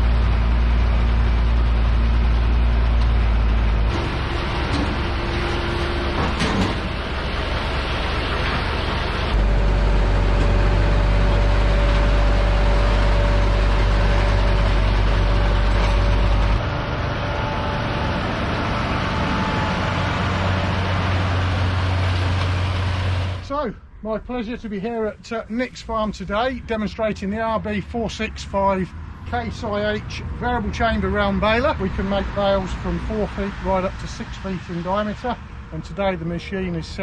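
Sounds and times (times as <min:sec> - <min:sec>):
tractor and round baler running: 0:00.0 - 0:23.7, 0:24.3 - 0:37.0
steady machine whine: 0:00.0 - 0:27.6.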